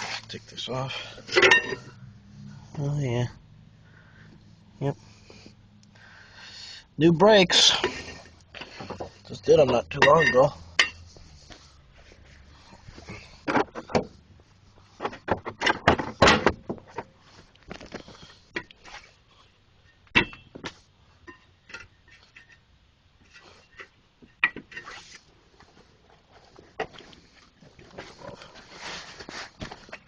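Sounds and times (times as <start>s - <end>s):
metal tools knocking: 8.8s - 11.0s.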